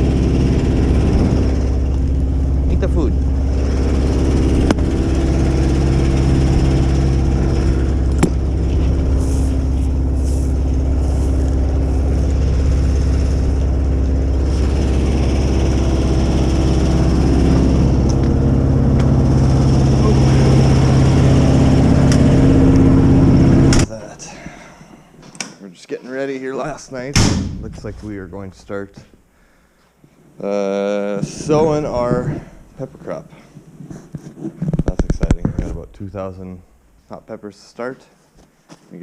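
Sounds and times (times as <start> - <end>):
engine low drone: 0.0 - 24.0, 27.2 - 28.8.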